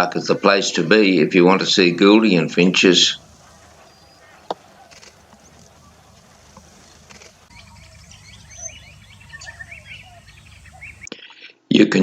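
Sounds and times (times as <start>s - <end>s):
small birds chirping: 0.4s - 11.1s
low background rumble: 3.0s - 11.1s.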